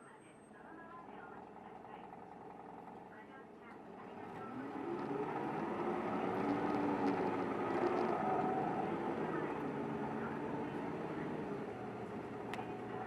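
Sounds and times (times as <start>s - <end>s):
bus engine running: 0.7s - 13.0s.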